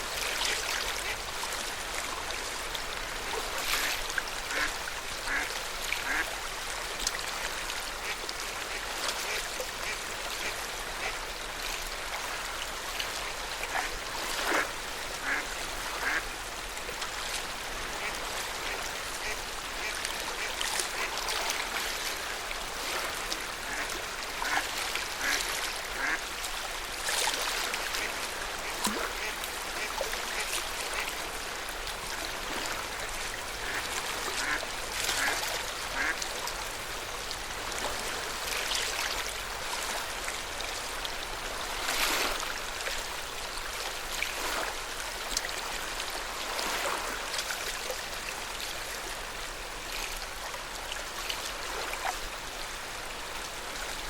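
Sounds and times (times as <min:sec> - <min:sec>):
lake water lapping and splashing: 0:00.0 - 0:54.0.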